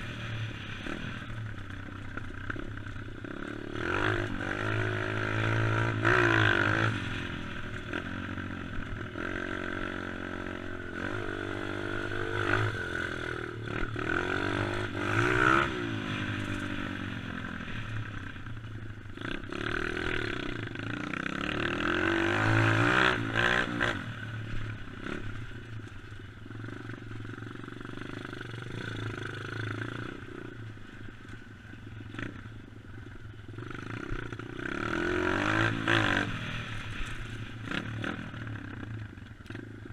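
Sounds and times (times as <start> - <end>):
dirt bike rattling: 0.0 - 39.9
dirt bike engine revving: 2.2 - 17.9, 19.1 - 25.5, 33.5 - 38.9.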